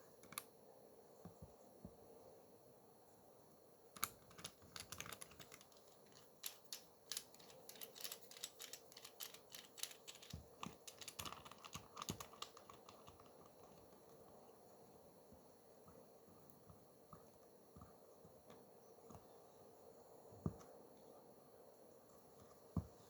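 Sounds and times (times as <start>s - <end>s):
light clicks and taps: 4.0s - 14.2s.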